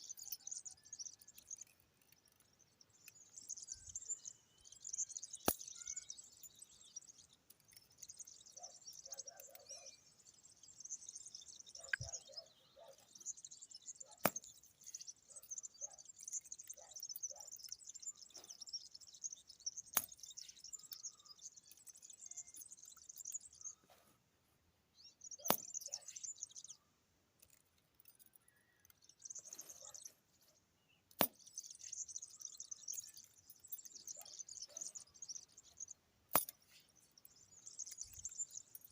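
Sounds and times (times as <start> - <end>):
shrill high-pitched chirping: 2.4 - 7.2, 7.9 - 23.8, 31.5 - 36.0.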